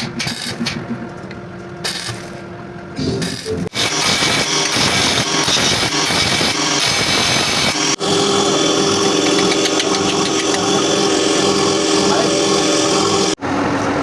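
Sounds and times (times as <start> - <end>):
motor humming: 3.0 - 14.0.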